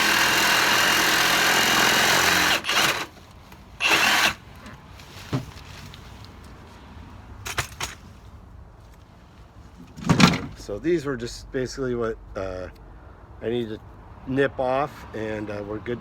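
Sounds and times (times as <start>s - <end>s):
power saw cutting wood: 0.0s - 3.2s, 3.8s - 4.4s.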